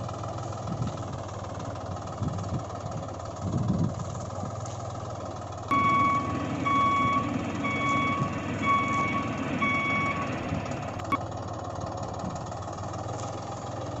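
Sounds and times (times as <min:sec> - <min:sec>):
reversing beeper beeping: 0:05.7 - 0:11.2.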